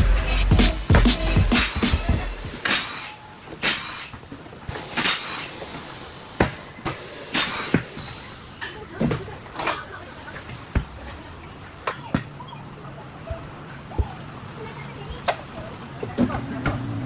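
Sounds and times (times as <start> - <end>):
short hissing bursts: 0.0 - 8.7.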